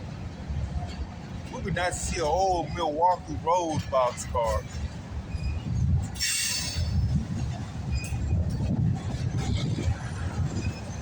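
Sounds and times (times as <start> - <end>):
train wheels rumbling on rail: 0.0 - 11.0
metallic screech: 5.3 - 7.1.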